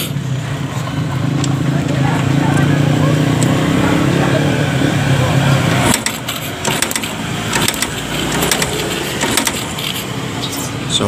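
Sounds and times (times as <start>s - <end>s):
motorcycle engine turning over: 0.0s - 10.6s
sharp clicks and crackles: 5.9s - 10.1s.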